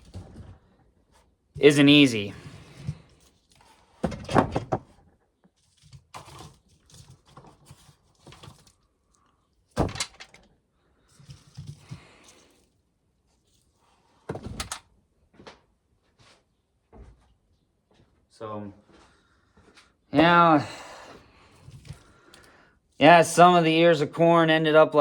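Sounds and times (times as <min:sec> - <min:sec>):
rustling and scraping: 0:00.0 - 0:14.6, 0:15.3 - 0:18.2, 0:21.4 - 0:22.3.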